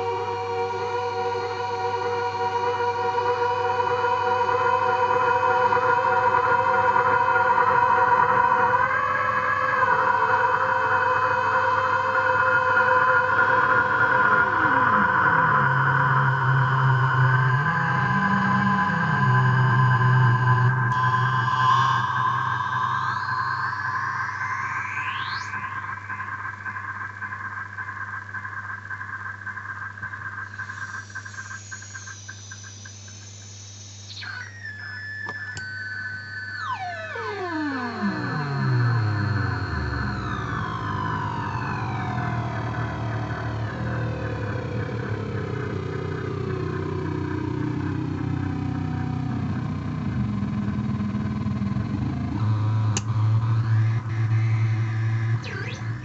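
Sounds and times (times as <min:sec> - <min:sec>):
electronic oscillator squeal: 0:13.8 - 0:28.3, 0:30.1 - 0:56.0.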